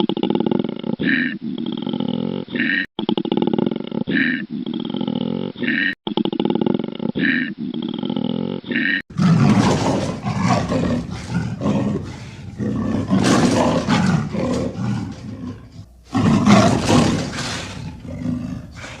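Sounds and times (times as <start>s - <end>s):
large animal roaring: 9.1s - 19.0s.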